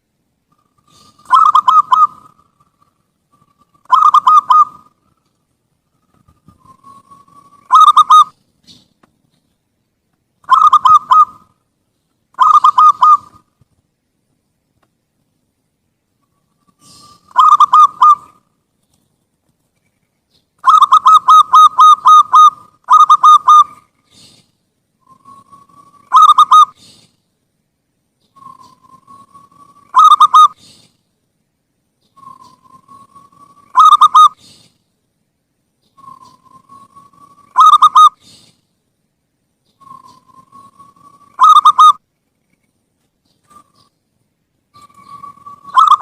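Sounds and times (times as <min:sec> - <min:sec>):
dove cooing: 0:00.5 - 0:05.1, 0:06.0 - 0:08.8, 0:10.4 - 0:11.5, 0:12.4 - 0:13.5, 0:16.6 - 0:18.4, 0:20.6 - 0:24.4, 0:25.0 - 0:27.0, 0:28.4 - 0:30.8, 0:32.2 - 0:34.7, 0:36.0 - 0:38.5, 0:39.8 - 0:42.0, 0:44.8 - 0:46.0.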